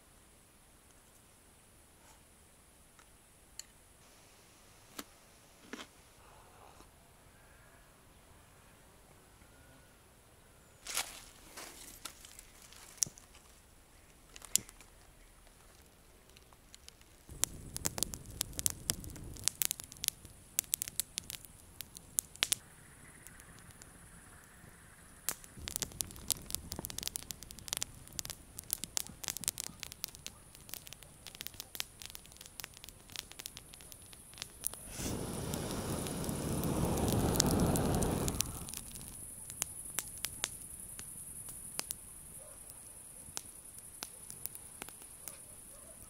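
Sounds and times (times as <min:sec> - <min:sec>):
campfire crackling and popping: 0:12.0 - 0:46.0
low rumble: 0:34.7 - 0:39.2.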